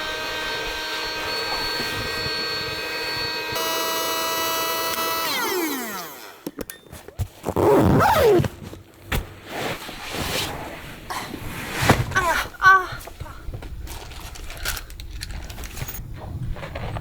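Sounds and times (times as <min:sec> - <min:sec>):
electric motor whining: 0:00.0 - 0:06.7.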